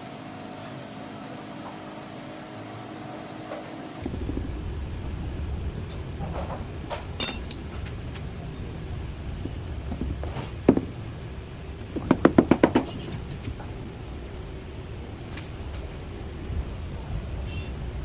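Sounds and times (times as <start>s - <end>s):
steady low rumble: 4.0s - 18.0s.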